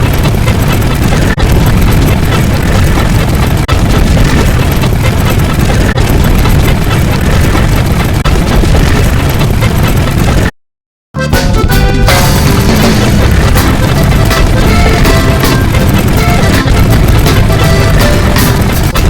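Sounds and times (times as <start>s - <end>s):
loud low rumbling noise: 0.0s - 10.5s, 11.2s - 19.0s.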